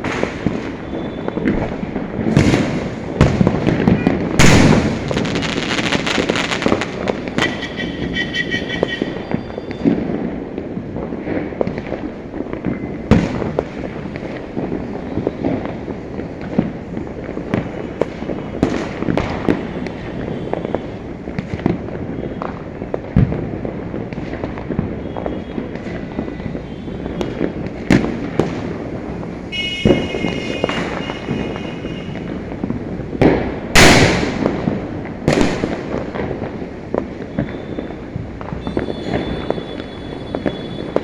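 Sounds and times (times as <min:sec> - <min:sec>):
big echoing booms: 0:00.0 - 0:14.9, 0:25.5 - 0:41.0
firecrackers crackling: 0:00.0 - 0:41.0
sharp nearby firecracker bursts: 0:00.0 - 0:41.0
distant bangs rumbling: 0:25.6 - 0:37.3.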